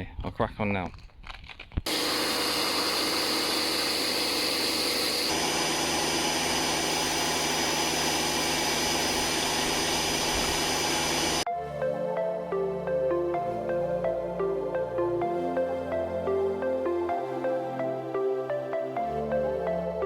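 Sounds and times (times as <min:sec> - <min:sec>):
electric pressure washer running: 0:01.9 - 0:11.5.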